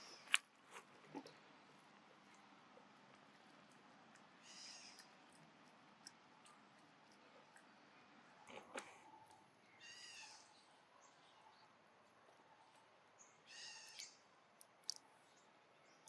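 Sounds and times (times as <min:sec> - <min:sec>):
baby monkey calling: 0:09.8 - 0:10.4, 0:13.5 - 0:14.1.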